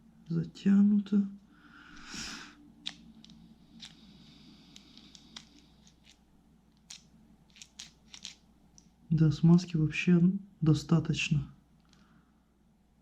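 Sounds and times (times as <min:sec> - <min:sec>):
small parts clicking and tapping: 0:04.7 - 0:08.9.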